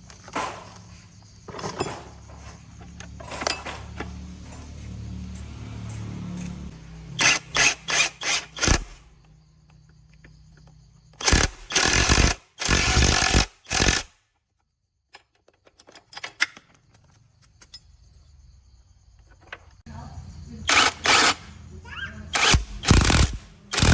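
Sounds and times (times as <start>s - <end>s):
power tool bursts: 7.2s - 9.0s, 11.2s - 14.1s, 20.7s - 21.5s, 22.4s - 23.9s.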